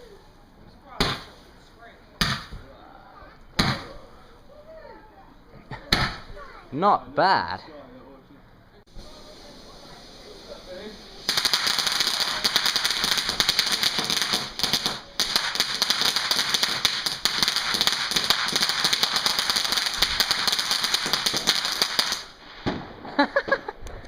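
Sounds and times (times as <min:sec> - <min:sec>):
firework crackling pops: 0:01.0 - 0:01.5, 0:02.2 - 0:02.6, 0:08.9 - 0:24.0.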